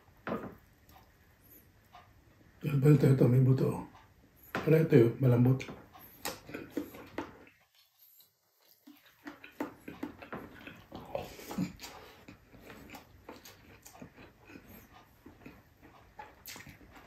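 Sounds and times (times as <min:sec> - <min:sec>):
wet chewing mouth sounds: 0:05.8 - 0:17.0.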